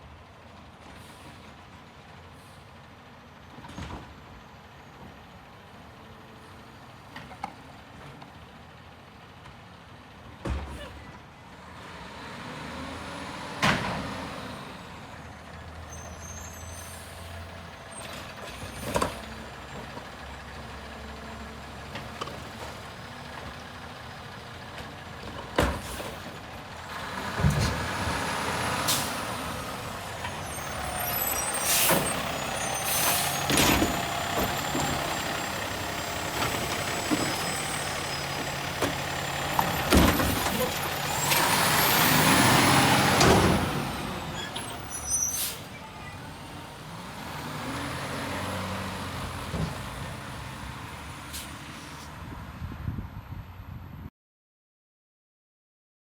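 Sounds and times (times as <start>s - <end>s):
air brakes hissing: 1.0s - 1.5s, 15.8s - 19.6s, 25.7s - 26.2s, 28.6s - 42.3s, 43.5s - 45.8s, 51.2s - 52.1s
garbage truck engine running: 3.0s - 51.3s.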